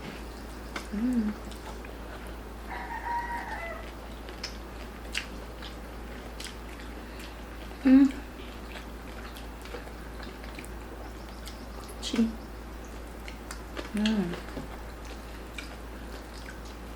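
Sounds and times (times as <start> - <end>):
low voice humming: 0.9 - 1.5, 7.8 - 8.3
rooster crowing: 2.7 - 4.0.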